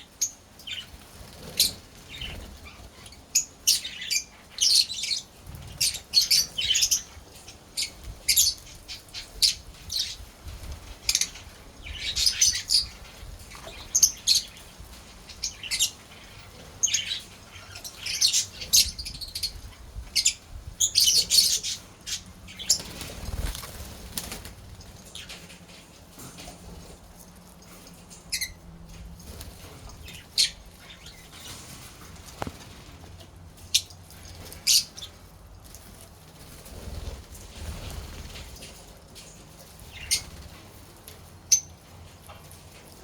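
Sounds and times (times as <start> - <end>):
lovebirds chirping: 0.0 - 25.6, 28.2 - 32.9, 39.6 - 40.6, 41.5 - 41.9.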